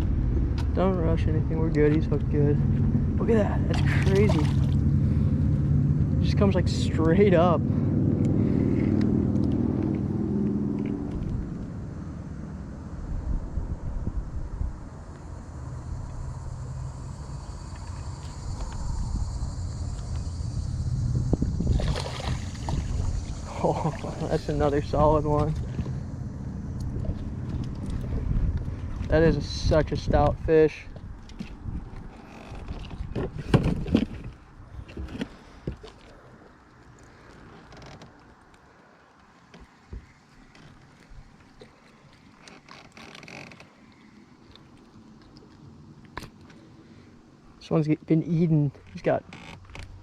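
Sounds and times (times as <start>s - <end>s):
high insect drone: 0.0s - 32.9s, 36.4s - 50.0s
wind rumble on microphone: 0.0s - 35.9s.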